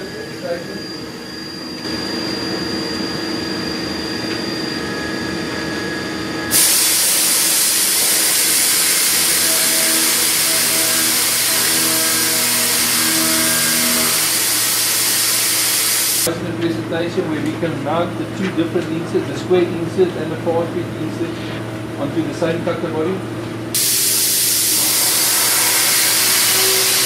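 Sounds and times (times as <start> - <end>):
machine hum: 0.0 - 27.0
loud steady hiss: 6.5 - 16.3, 23.8 - 27.0.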